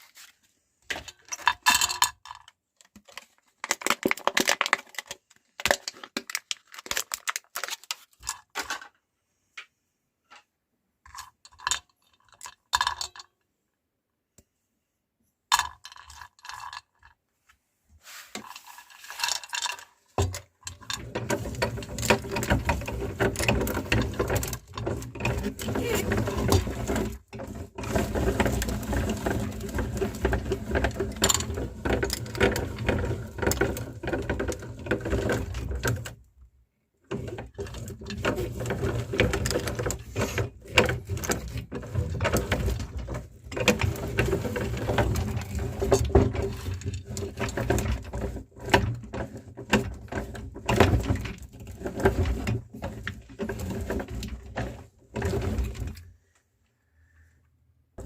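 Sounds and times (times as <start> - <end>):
crackling and clicking in grinder: 1.4 - 8.6, 19.4 - 36.2.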